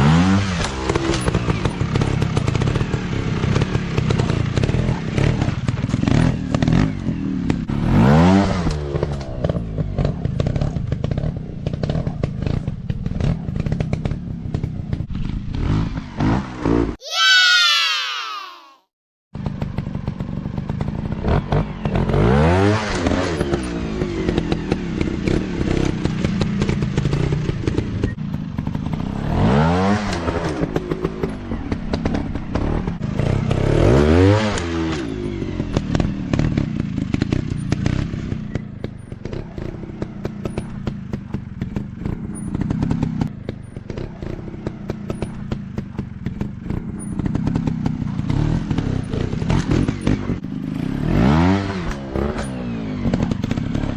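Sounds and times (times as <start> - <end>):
dirt bike engine revving: 0.0 - 14.2, 19.4 - 38.6, 46.2 - 53.9.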